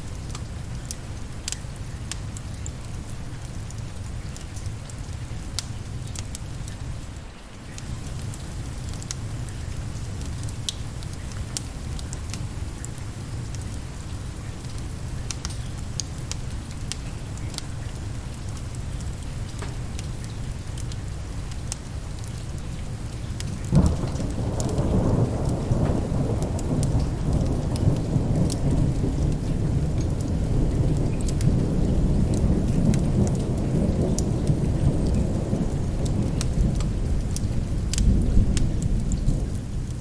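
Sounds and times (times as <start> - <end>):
rain falling: 0.0 - 40.0
thunder rolling: 23.7 - 39.6.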